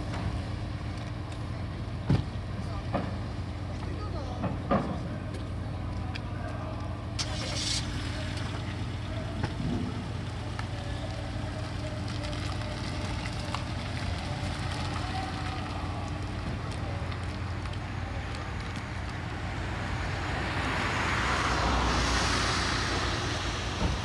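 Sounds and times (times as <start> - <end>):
engine rumble: 0.0 - 24.0
short hiss: 7.2 - 10.6.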